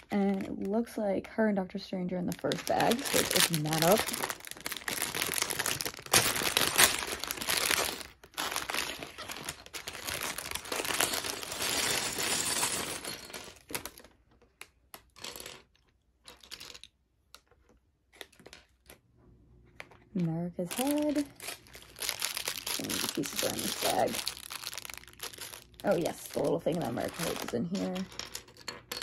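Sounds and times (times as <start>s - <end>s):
plastic bag tearing and crinkling: 2.2s - 14.1s, 20.6s - 28.3s
plastic pieces clicking: 2.4s - 19.0s, 20.7s - 29.0s.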